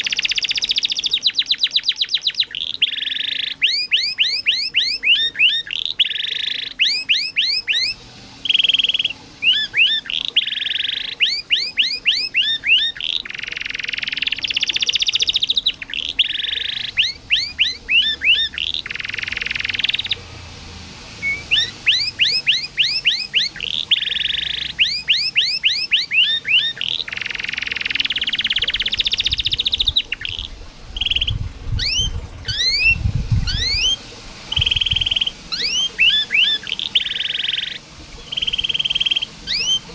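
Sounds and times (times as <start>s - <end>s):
canary singing: 0.0s - 20.4s, 21.2s - 39.9s.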